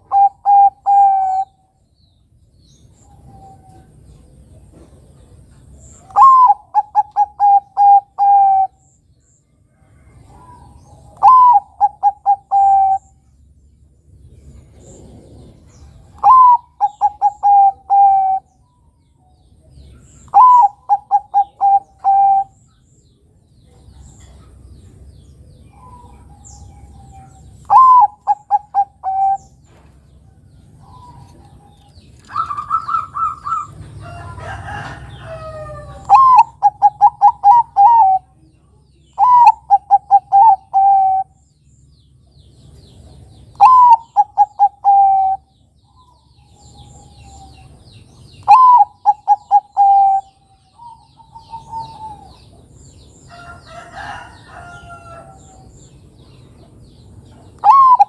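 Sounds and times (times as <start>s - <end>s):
doves cooing: 0.0s - 1.6s, 6.1s - 8.8s, 10.3s - 13.1s, 14.6s - 18.5s, 20.3s - 22.6s, 25.7s - 29.9s, 30.7s - 38.3s, 39.2s - 41.4s, 43.5s - 45.5s, 48.4s - 52.7s, 57.6s - 58.0s
other birds calling faintly: 0.0s - 58.0s
higher held bird call: 57.6s - 58.0s.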